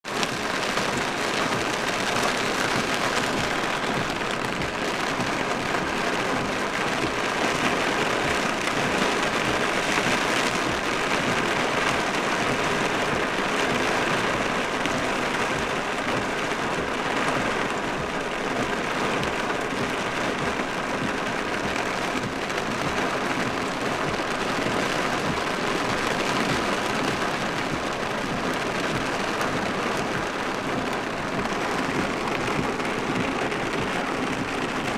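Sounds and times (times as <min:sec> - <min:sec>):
heavy rain drumming on truck roof: 0:00.0 - 0:34.9.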